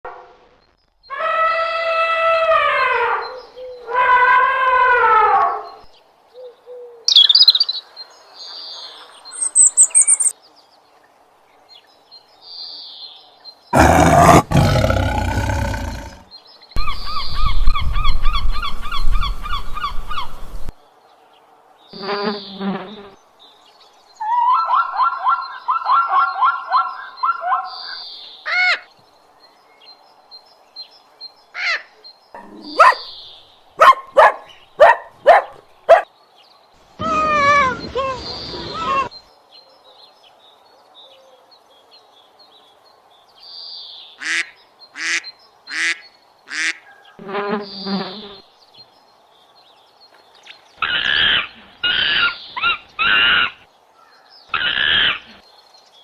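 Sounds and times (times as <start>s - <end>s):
high chirps: 9.4s - 10.3s
loud pitched animal call: 13.8s - 16.2s.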